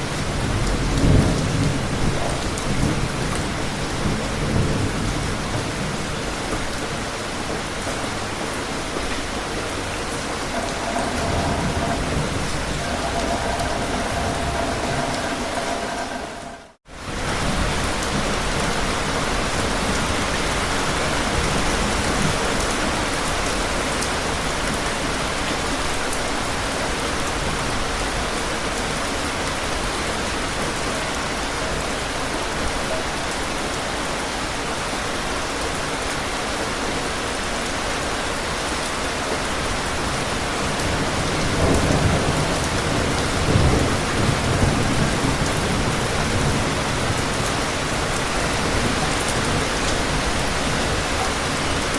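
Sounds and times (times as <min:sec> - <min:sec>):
thunder rumbling: 0:00.0 - 0:18.6, 0:40.8 - 0:51.9
heavy rain falling: 0:00.0 - 0:51.9.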